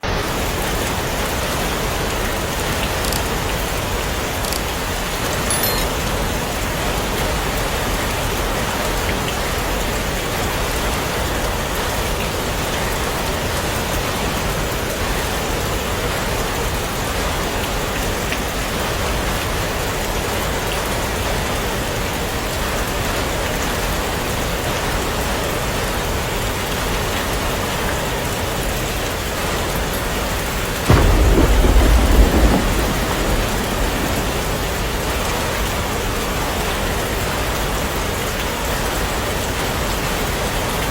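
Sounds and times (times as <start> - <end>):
heavy rain falling: 0.0 - 40.9
thunderclap rumbling: 30.8 - 36.7.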